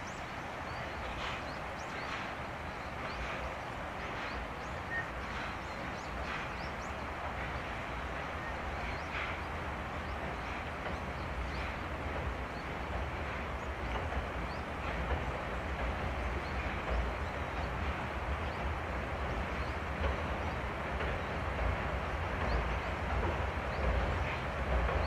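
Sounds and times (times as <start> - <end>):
steam train rumbling: 0.0 - 25.0.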